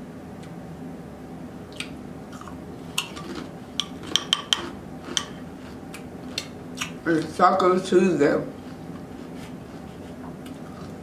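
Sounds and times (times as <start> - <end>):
chewing with wet mouth clicks: 1.7 - 7.3.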